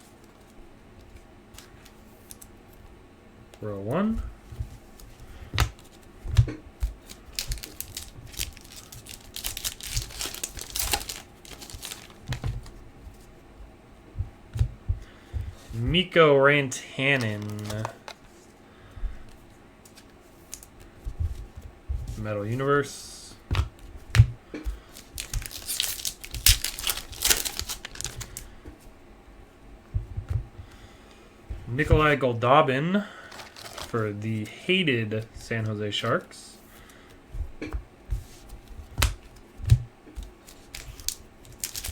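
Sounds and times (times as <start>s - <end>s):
wrapper tearing and crinkling: 7.0s - 12.4s, 17.2s - 18.2s, 25.0s - 28.4s, 33.3s - 34.0s, 40.4s - 41.9s
clicks of card handling: 17.1s - 18.3s.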